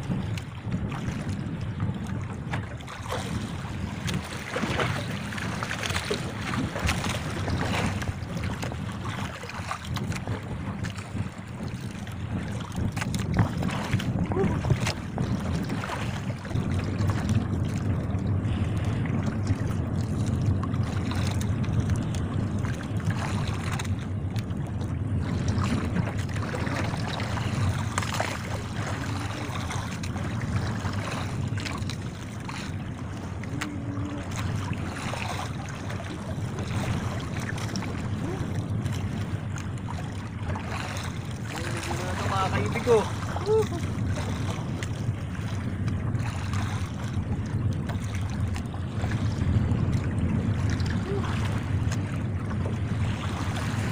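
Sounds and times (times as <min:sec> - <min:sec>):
choppy sea: 0:00.0 - 0:53.9
water splashes: 0:00.0 - 0:53.9
wind buffeting microphone: 0:00.0 - 0:53.9.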